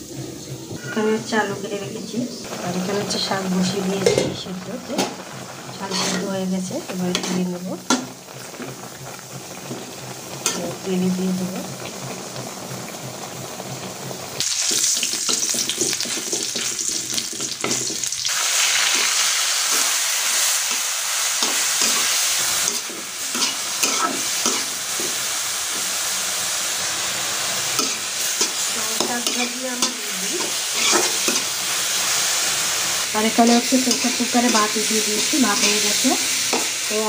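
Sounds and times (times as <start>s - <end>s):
greens sizzling in oil: 0.7s - 37.0s
spatula scraping a wok: 5.4s - 10.9s, 15.1s - 36.9s.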